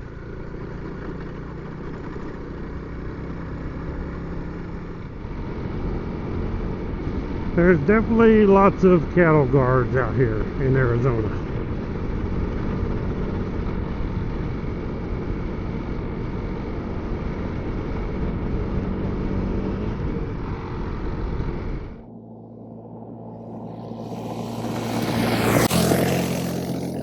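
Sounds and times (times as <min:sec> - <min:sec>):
motorcycle engine drone: 0:00.0 - 0:27.0
wind rush: 0:19.3 - 0:27.0.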